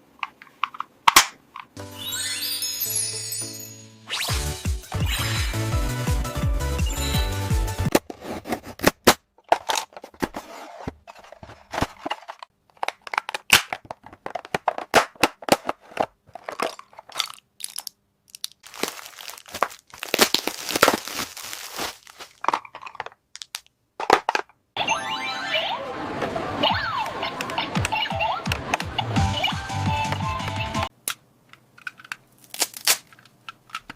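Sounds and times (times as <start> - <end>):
plastic pieces clicking: 12.0 - 21.2, 22.2 - 24.6, 31.0 - 33.9
plastic packaging crinkling: 16.3 - 23.7, 31.8 - 33.9.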